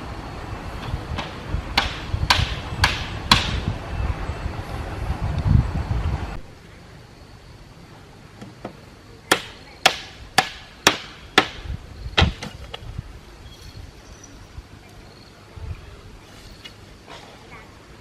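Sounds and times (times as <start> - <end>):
hammer blows: 0.8 - 3.8.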